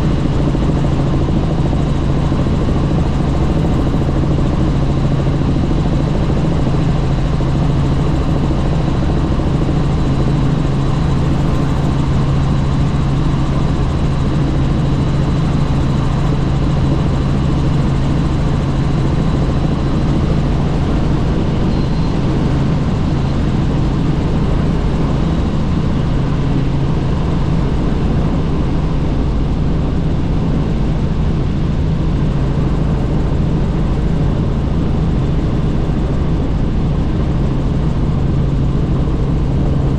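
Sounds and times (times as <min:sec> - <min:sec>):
helicopter engine and rotor drone: 0:00.0 - 0:39.9
faint high whine: 0:14.0 - 0:25.6.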